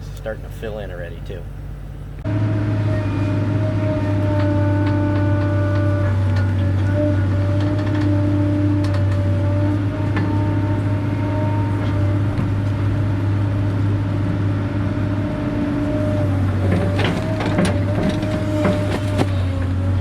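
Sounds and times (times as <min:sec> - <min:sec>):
excavator diesel engine: 0:00.0 - 0:20.0.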